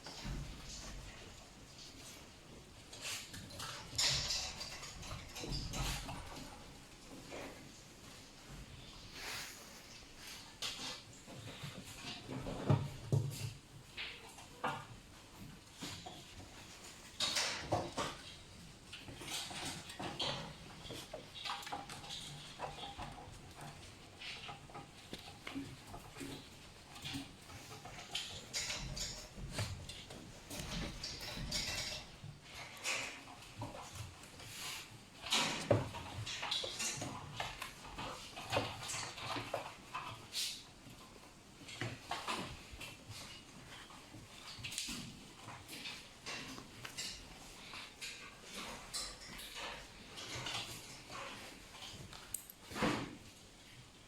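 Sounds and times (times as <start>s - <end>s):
raccoons knocking and scrabbling: 0.0s - 54.0s.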